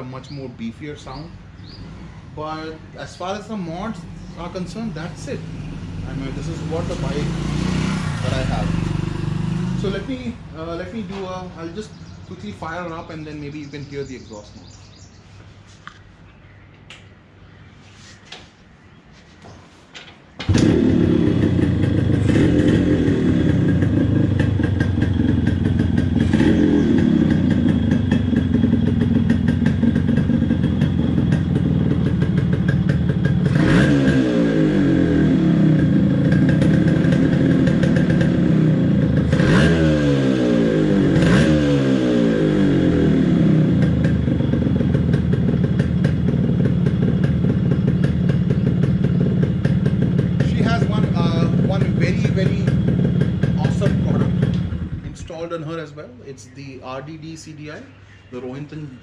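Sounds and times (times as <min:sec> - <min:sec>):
motorcycle engine starting and running: 0:03.3 - 0:14.3, 0:20.4 - 0:56.0.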